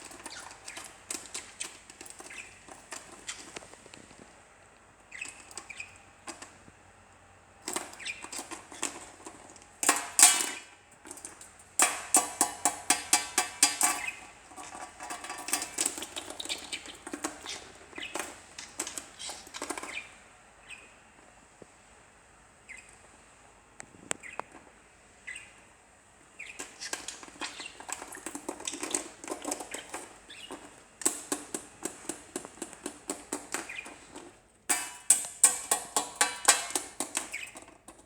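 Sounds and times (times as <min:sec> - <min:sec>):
bird chirping: 0:00.0 - 0:03.6, 0:05.0 - 0:06.4, 0:07.7 - 0:09.1, 0:13.1 - 0:21.0, 0:22.6 - 0:23.0, 0:24.2 - 0:24.6, 0:25.2 - 0:25.7, 0:26.3 - 0:34.3, 0:35.5 - 0:37.8
bird beak pecking and clicking: 0:00.0 - 0:04.0, 0:11.0 - 0:20.1, 0:26.4 - 0:38.0.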